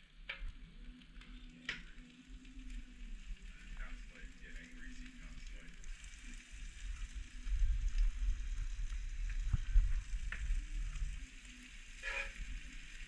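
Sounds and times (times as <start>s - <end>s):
squid sizzling in pan: 0.0s - 13.0s.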